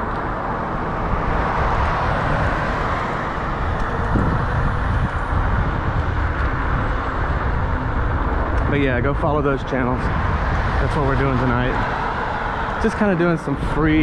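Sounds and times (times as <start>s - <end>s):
tyres humming on pavement: 0.0s - 14.0s
wind over microphone: 0.0s - 14.0s.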